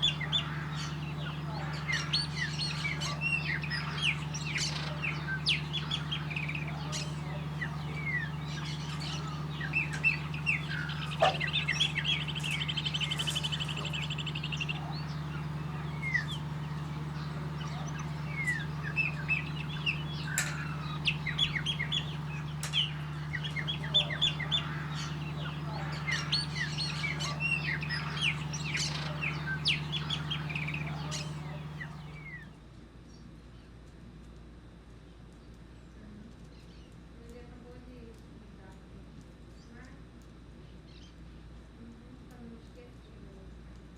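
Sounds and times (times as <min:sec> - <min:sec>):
blackbirds chirping and trilling: 0:00.0 - 0:32.4
steady low hum: 0:00.0 - 0:32.5.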